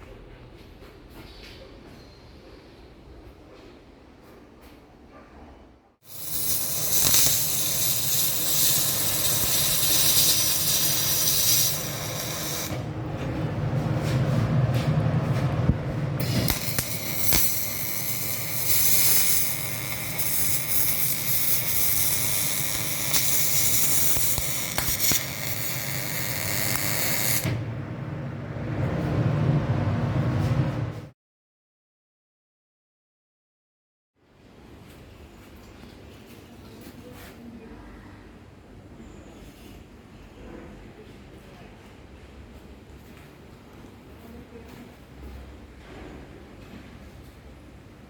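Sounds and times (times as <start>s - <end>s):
welding arc hissing: 6.0s - 12.8s, 16.2s - 27.6s.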